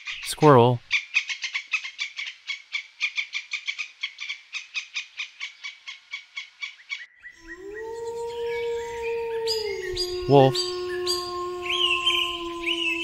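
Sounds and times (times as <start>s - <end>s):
wolf howling: 7.4s - 13.0s.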